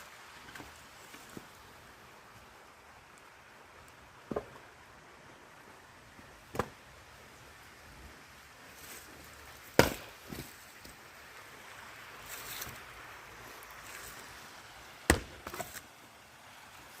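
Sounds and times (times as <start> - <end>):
axe chopping wood: 4.3 - 4.6, 6.5 - 6.8, 9.8 - 10.5, 15.1 - 15.8.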